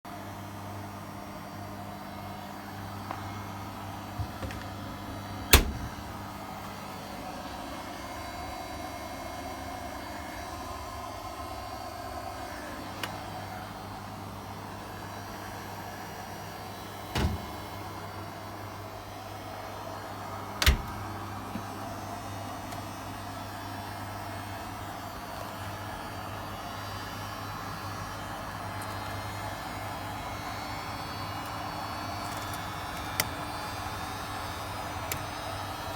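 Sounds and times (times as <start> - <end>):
tumble dryer humming: 1.8 - 8.7, 16.2 - 23.4, 31.0 - 35.9
sharp knocks inside dryer: 5.5 - 6.1, 17.2 - 17.7.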